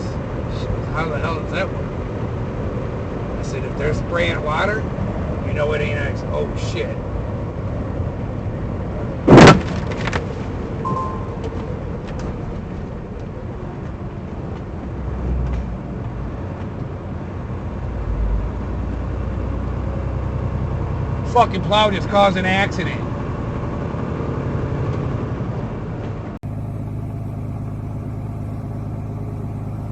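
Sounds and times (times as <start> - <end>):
vehicle driving rumble: 0.0 - 29.9
loud collision bang: 9.3 - 9.9, 10.9 - 11.9.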